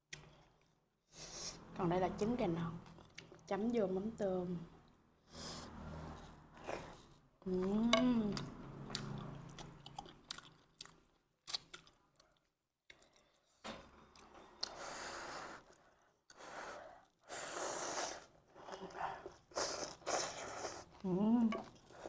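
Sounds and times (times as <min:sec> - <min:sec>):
person chewing with smacking clicks: 0:02.8 - 0:03.4, 0:08.4 - 0:13.5.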